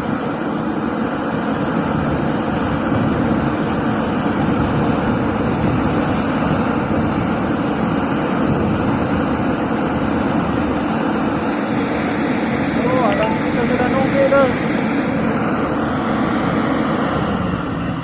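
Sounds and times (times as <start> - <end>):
excavator diesel engine running: 6.2 - 18.0.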